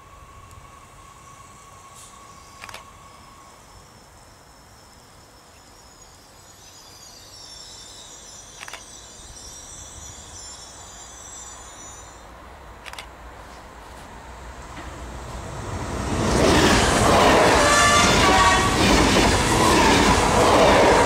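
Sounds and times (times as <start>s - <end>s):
electric train rumbling: 0.0s - 21.0s
brakes and wheels squealing: 0.2s - 13.0s
sharp clicks: 2.6s - 2.9s, 8.6s - 8.9s, 12.8s - 13.2s.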